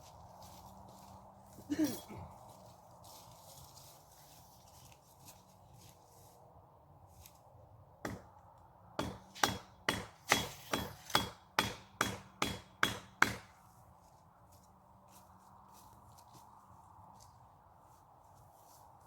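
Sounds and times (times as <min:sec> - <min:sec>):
tool striking wood: 0:08.0 - 0:08.3, 0:09.0 - 0:13.5.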